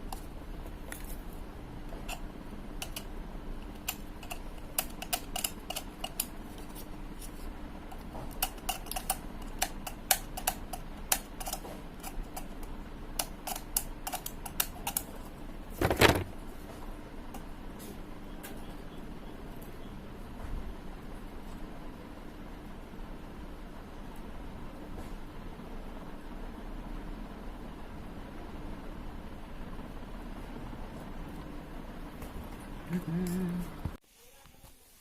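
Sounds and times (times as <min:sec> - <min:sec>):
small hard parts clicking: 0:02.8 - 0:06.4, 0:08.4 - 0:15.1.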